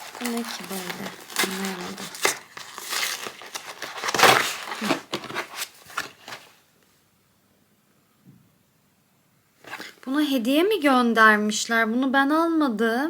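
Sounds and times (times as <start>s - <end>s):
packaging rustling and crinkling: 0.0s - 6.6s.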